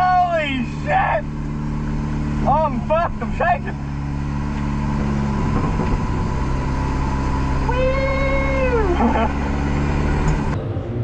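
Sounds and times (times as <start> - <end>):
car engine idling: 0.0 - 10.6
long high voice-like call: 7.6 - 9.1.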